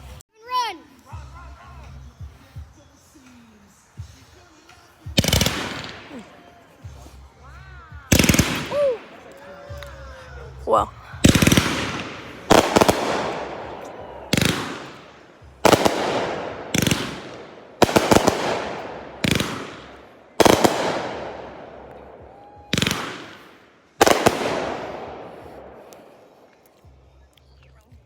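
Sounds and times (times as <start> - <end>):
fireworks crackling: 2.3 - 7.3, 8.0 - 26.9
fireworks banging: 5.1 - 7.0, 8.1 - 9.8, 10.8 - 26.6.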